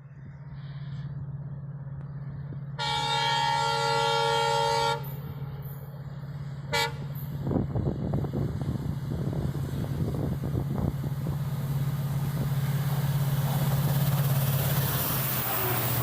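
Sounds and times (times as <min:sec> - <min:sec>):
diesel locomotive engine hum: 0:00.0 - 0:16.0
train horn blast: 0:02.8 - 0:05.7, 0:06.7 - 0:07.3.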